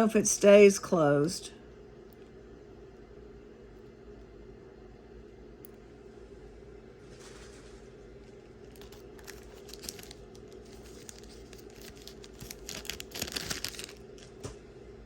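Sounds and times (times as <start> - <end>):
faint steady hum: 0.0 - 15.0
jewelry crinkling and clicking: 8.7 - 14.5.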